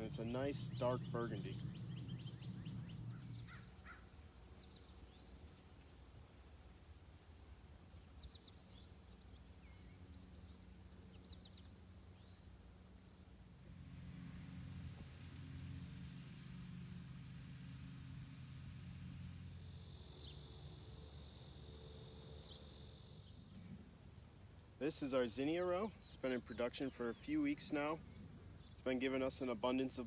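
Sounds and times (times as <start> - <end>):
low rumble: 0.0 - 3.5
bird chirps: 0.0 - 4.0
insect drone: 0.0 - 16.3, 18.5 - 26.7, 27.8 - 30.0.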